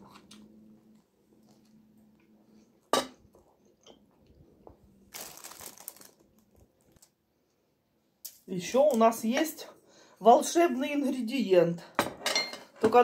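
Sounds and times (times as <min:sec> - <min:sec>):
crunchy rustle: 0:05.0 - 0:07.1.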